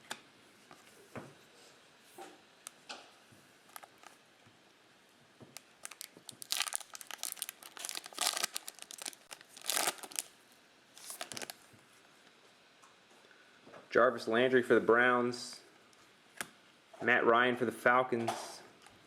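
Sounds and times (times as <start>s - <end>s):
plastic wrapper tearing and crinkling: 3.7s - 4.2s, 5.6s - 10.3s, 11.0s - 11.6s.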